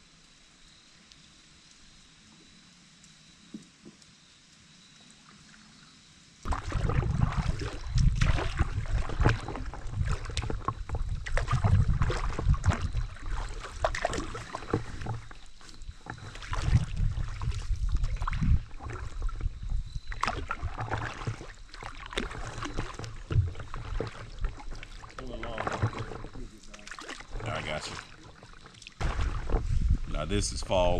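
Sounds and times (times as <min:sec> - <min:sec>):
water splashing around paddle: 0:06.4 - 0:30.2
paddle knocks: 0:22.2 - 0:24.8, 0:25.5 - 0:29.8.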